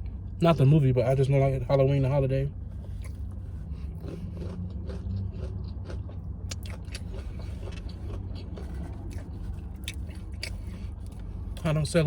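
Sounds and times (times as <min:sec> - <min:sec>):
steady low hum: 0:00.0 - 0:12.0
chewing and wet mouth clicks: 0:03.9 - 0:11.2.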